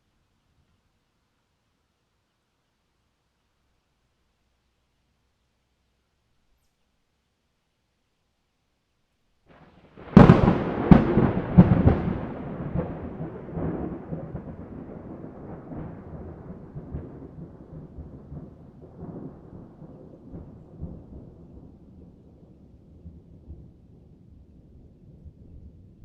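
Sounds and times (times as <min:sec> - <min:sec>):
thunder crack: 0:09.5 - 0:22.2
rolling thunder rumble: 0:09.5 - 0:26.0.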